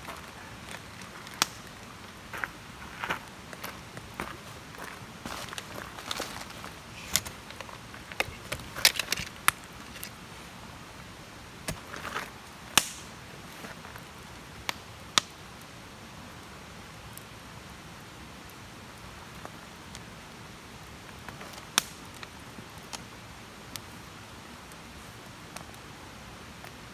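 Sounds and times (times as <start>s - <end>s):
campfire wood crackling and popping: 0.0s - 26.9s
fire hiss: 0.3s - 26.9s.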